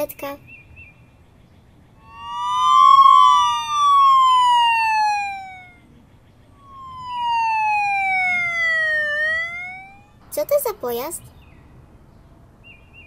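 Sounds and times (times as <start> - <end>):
siren wailing: 2.0 - 10.2.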